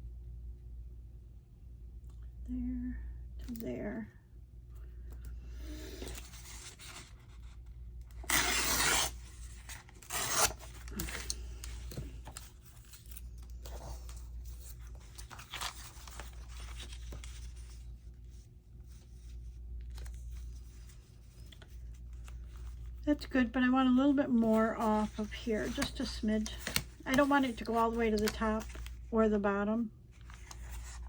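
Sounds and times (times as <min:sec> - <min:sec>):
paper rubbing and scraping: 0:08.2 - 0:11.2.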